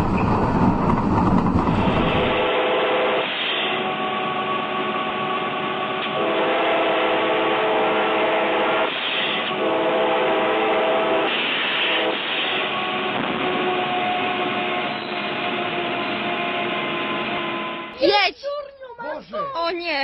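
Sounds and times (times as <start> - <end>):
train noise: 0.0 - 20.0
train horn blasts: 2.4 - 17.9.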